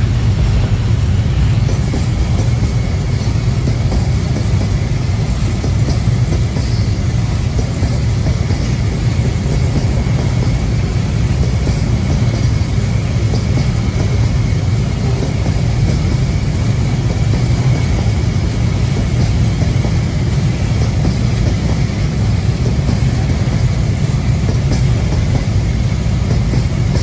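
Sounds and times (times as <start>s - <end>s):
train rumbling past: 0.0s - 27.0s.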